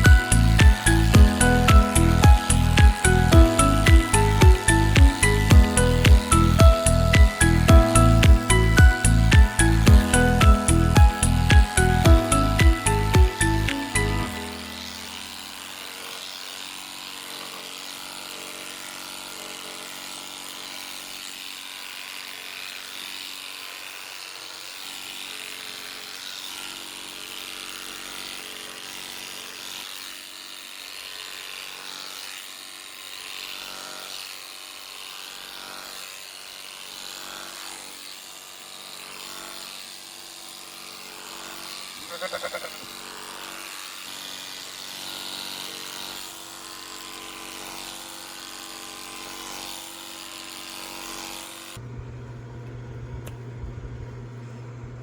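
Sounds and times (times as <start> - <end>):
electric clippers buzzing: 0.0 - 55.0
sheep bleating: 42.0 - 43.0.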